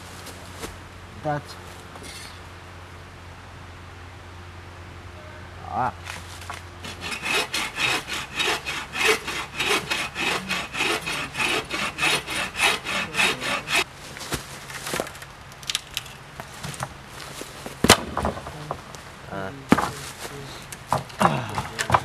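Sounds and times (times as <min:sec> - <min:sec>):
hand saw cutting log: 0:06.8 - 0:13.8
knocks on wood: 0:20.9 - 0:22.0.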